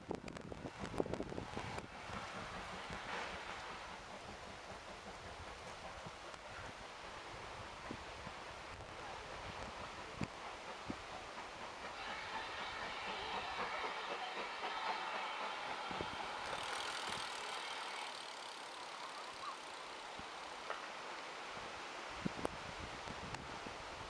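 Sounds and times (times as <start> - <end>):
distant train passing: 0.0 - 24.0
faint clicks: 5.6 - 6.7.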